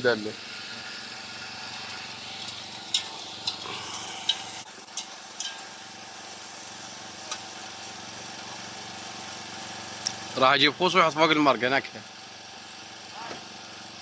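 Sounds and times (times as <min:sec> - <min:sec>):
steady low hum: 0:00.3 - 0:08.6.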